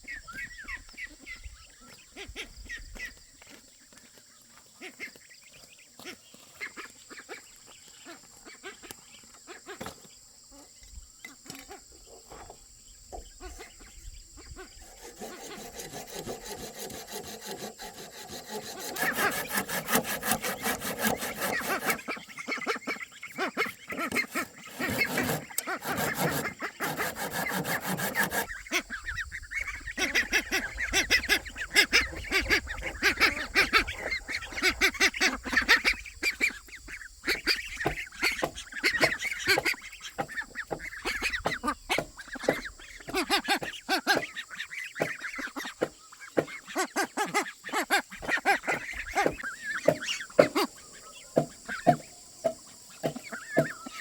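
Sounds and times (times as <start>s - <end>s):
fowl calling: 13.2s - 54.0s
hand saw rasping wood: 14.8s - 22.2s, 23.9s - 28.7s, 48.2s - 50.7s.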